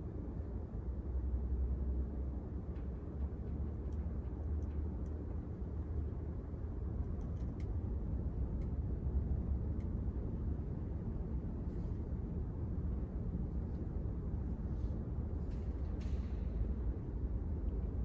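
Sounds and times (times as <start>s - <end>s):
ceiling fan low rumble: 0.0s - 18.0s.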